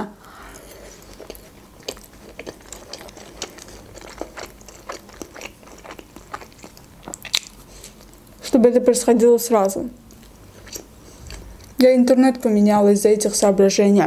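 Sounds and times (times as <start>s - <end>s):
biting into bread: 0.6s - 8.6s
chewing wet clicks and crunches: 0.6s - 8.6s, 10.1s - 11.8s.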